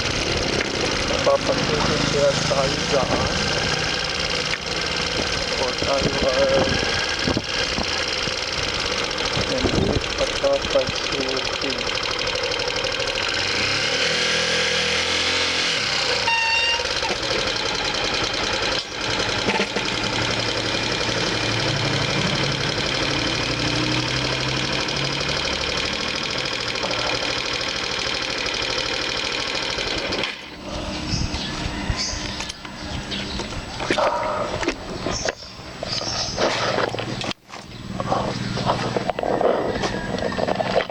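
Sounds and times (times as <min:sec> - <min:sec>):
motorcycle engine running: 0:00.0 - 0:40.9
road noise: 0:00.0 - 0:40.9
short beep: 0:16.2 - 0:16.9.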